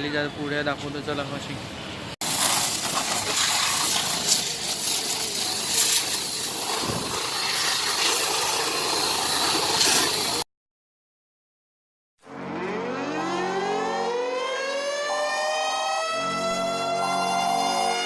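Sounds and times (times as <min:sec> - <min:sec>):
high-pressure water jet hissing: 0:02.2 - 0:10.4
spray hitting motorcycle: 0:02.2 - 0:10.4.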